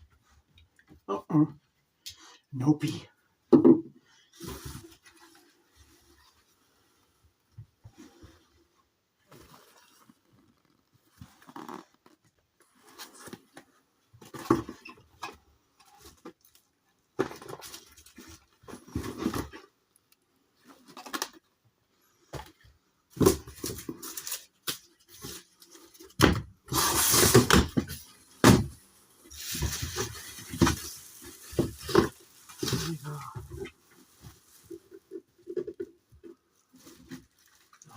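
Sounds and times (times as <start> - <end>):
packaging rustling and scraping: 4.3 - 6.6, 9.2 - 16.6, 23.2 - 37.9.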